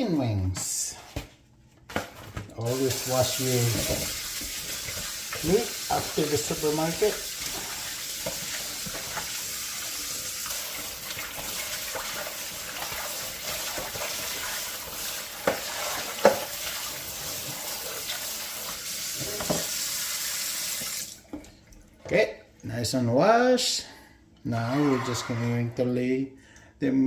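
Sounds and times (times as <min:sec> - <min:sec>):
kitchen tap running: 0:02.6 - 0:22.2.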